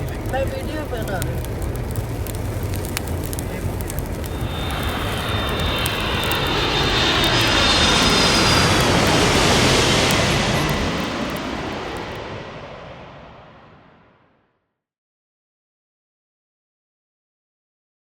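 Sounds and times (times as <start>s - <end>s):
vehicle passing rush: 0.2s - 14.0s
high whine falling in pitch: 4.2s - 14.3s.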